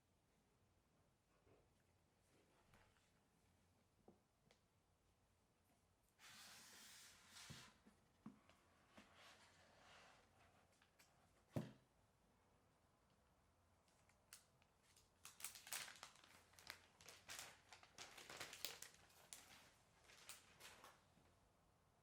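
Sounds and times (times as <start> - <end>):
packaging rustling and crinkling: 14.3 - 21.1.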